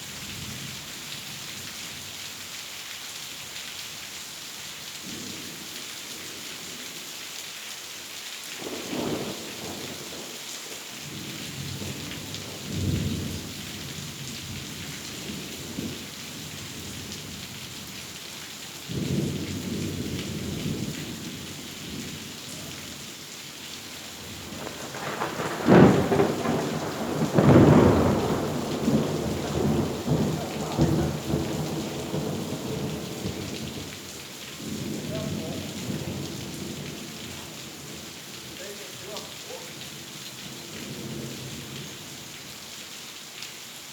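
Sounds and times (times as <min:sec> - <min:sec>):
heavy rain: 0:00.0 - 0:43.9
thunder rolling and cracking: 0:24.1 - 0:34.0.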